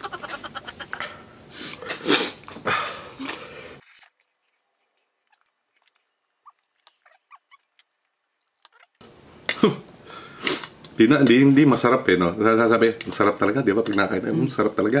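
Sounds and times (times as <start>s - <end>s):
faint chewing: 0.9s - 9.1s
small wet squeaks: 3.8s - 9.0s.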